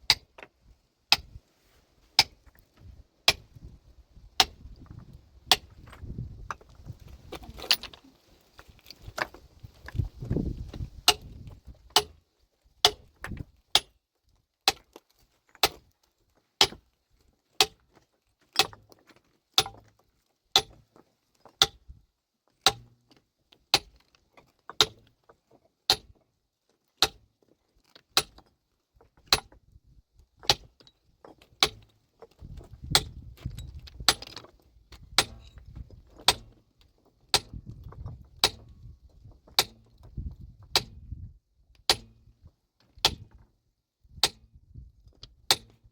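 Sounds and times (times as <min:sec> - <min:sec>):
metal tool striking stone: 0:00.1 - 0:00.5, 0:02.2 - 0:02.6, 0:03.3 - 0:03.5, 0:04.4 - 0:06.6, 0:11.1 - 0:12.2, 0:12.8 - 0:13.9, 0:14.7 - 0:15.0, 0:15.6 - 0:15.8, 0:16.6 - 0:16.8, 0:17.6 - 0:17.8, 0:18.6 - 0:18.8, 0:19.6 - 0:19.9, 0:20.6 - 0:20.8, 0:21.6 - 0:21.8, 0:22.6 - 0:23.0, 0:23.8 - 0:24.0, 0:24.7 - 0:25.0, 0:25.9 - 0:26.1, 0:27.0 - 0:27.2, 0:28.2 - 0:28.5, 0:29.2 - 0:29.6, 0:30.4 - 0:30.9, 0:31.6 - 0:31.9, 0:32.9 - 0:34.5, 0:35.1 - 0:36.6, 0:37.3 - 0:38.7, 0:39.6 - 0:39.9, 0:40.7 - 0:41.0, 0:41.9 - 0:42.2, 0:43.0 - 0:43.4, 0:44.2 - 0:44.4, 0:45.5 - 0:45.8.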